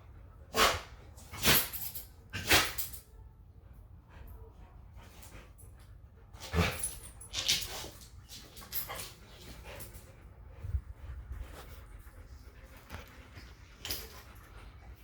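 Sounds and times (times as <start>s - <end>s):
dogs playing vocal outbursts: 0.5s - 3.0s, 6.3s - 10.1s.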